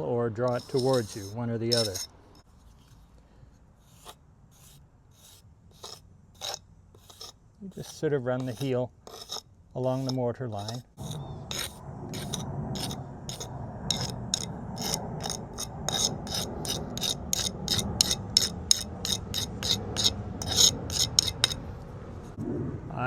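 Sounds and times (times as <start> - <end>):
mortar tool scraping joint: 0.0 - 3.2, 3.8 - 22.4.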